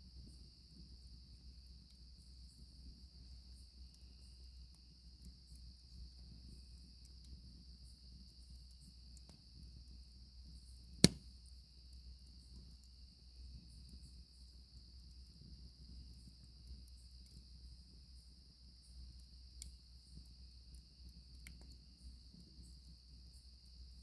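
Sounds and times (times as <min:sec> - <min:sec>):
campfire crackling and popping: 0:11.0 - 0:11.3.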